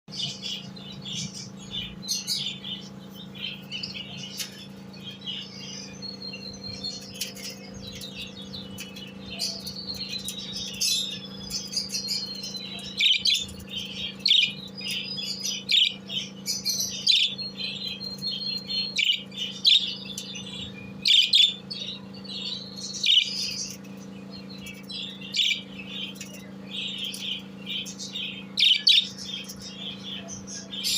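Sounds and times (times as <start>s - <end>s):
birds chirping and twittering: 0.1s - 30.9s
steady low hum: 0.1s - 30.9s.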